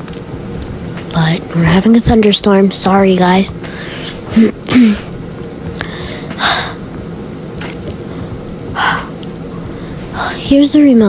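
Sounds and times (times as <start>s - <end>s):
steady background hum: 0.0s - 11.0s
breathy hisses: 3.6s - 7.0s, 7.7s - 10.7s.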